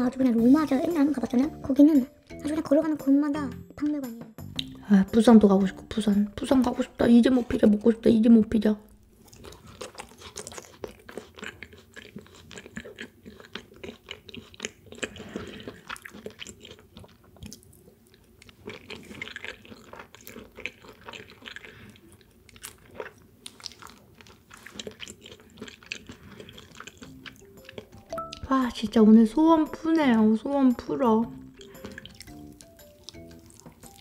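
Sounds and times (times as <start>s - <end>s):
chewing mouth clicks and smacks: 9.3s - 28.1s, 31.6s - 34.0s.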